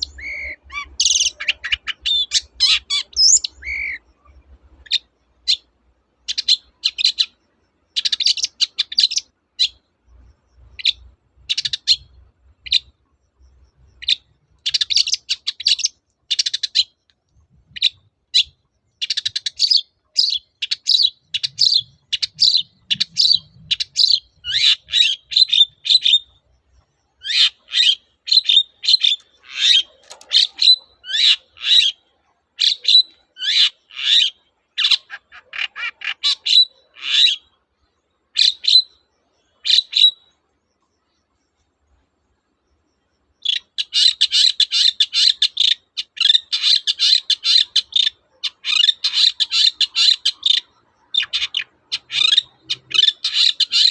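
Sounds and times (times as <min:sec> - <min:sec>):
shrike singing: 0:00.0 - 0:09.8.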